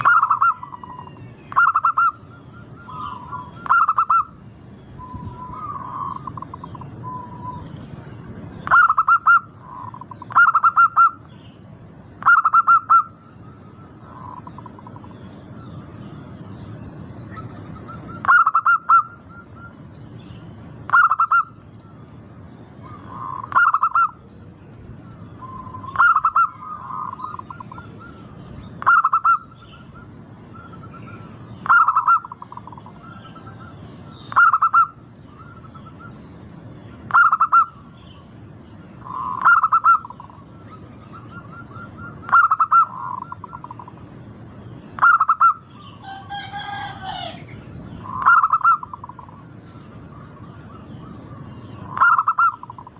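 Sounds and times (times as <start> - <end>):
dove cooing: 0.0 - 4.4, 5.0 - 7.7, 8.6 - 11.2, 12.2 - 15.2, 17.3 - 19.7, 20.9 - 21.6, 22.8 - 24.3, 25.0 - 36.2, 37.1 - 37.8, 39.0 - 44.0, 45.0 - 52.9
bird call with stacked pitches: 0.0 - 7.8, 12.2 - 21.6, 25.3 - 36.2, 36.8 - 44.1, 44.8 - 52.9.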